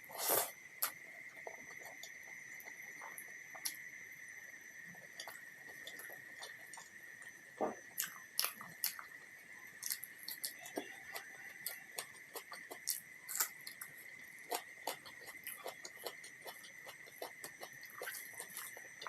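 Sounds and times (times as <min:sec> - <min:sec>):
steady high-pitched whine: 0:00.0 - 0:19.0
chewing and mouth sounds: 0:09.8 - 0:19.0.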